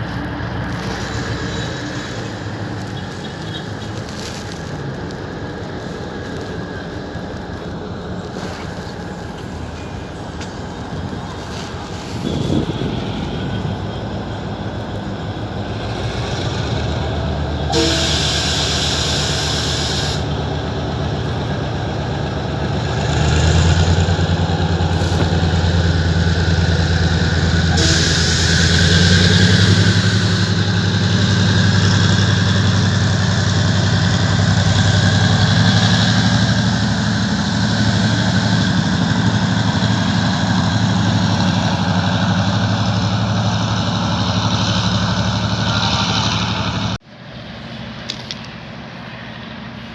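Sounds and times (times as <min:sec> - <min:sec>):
train engine droning: 0:00.0 - 0:49.9
hissing bursts: 0:17.7 - 0:20.4, 0:24.9 - 0:33.4.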